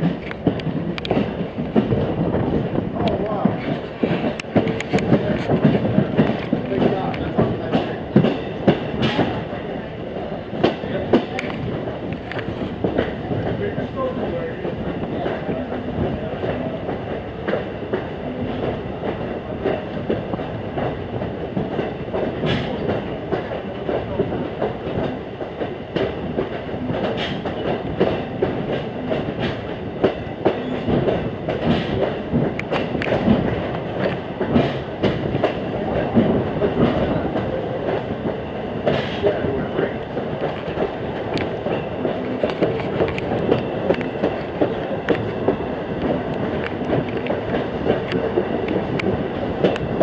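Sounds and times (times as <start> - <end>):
train coach rumbling: 0.0 - 50.0.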